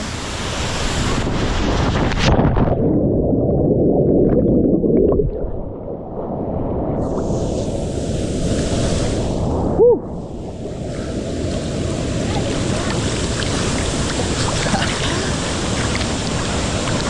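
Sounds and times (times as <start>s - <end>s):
waterfall rushing: 10.3s - 17.0s.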